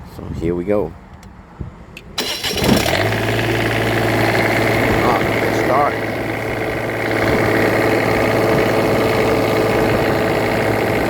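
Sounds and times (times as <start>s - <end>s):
diesel generator running: 2.2s - 11.0s.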